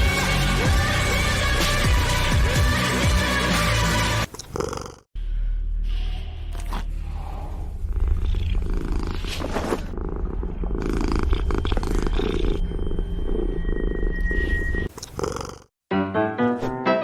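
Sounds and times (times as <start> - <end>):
cat purring: 4.4 - 5.1, 7.8 - 15.7.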